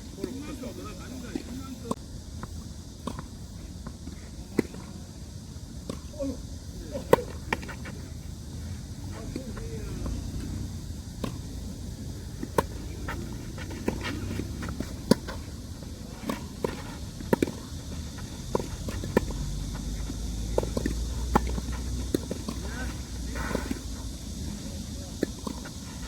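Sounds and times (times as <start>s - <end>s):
tennis ball bouncing on court: 1.3s - 4.9s, 9.3s - 24.4s, 25.1s - 25.8s
footsteps on court: 7.1s - 8.3s, 12.2s - 24.4s
tennis ball struck by racket: 12.3s - 24.4s.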